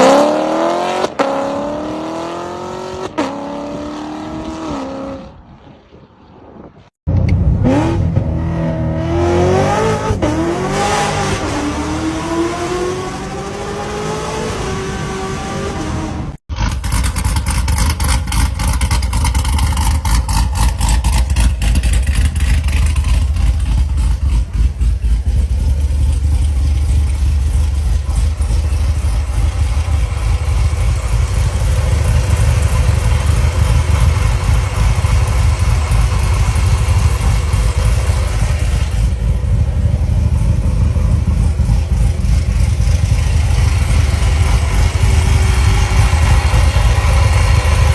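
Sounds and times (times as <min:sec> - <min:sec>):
engine exhaust rumble: 0:16.1 - 0:47.9.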